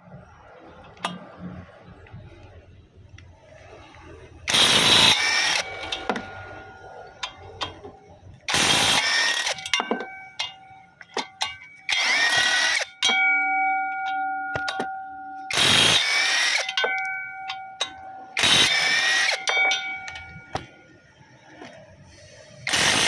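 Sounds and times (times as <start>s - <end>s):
power tool on metal: 4.5s - 6.3s, 8.5s - 9.8s, 11.9s - 13.0s, 15.5s - 16.8s, 17.8s - 19.6s, 22.7s - 23.0s
metal ringing: 4.5s - 21.8s.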